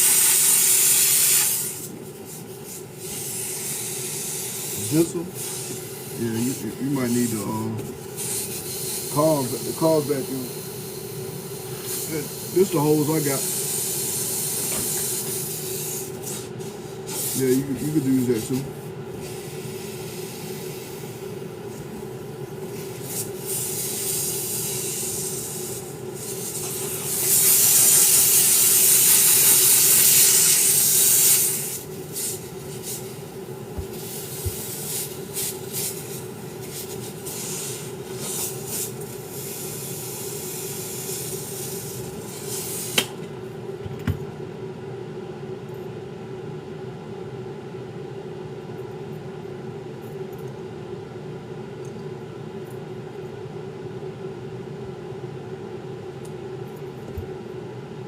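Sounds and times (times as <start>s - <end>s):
hissing bursts of air: 0.0s - 43.2s
steady low hum: 0.0s - 58.0s.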